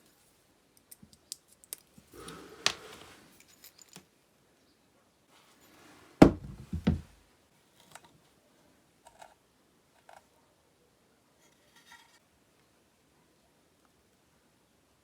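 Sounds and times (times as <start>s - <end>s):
heavy thump of objects: 6.2s - 7.2s.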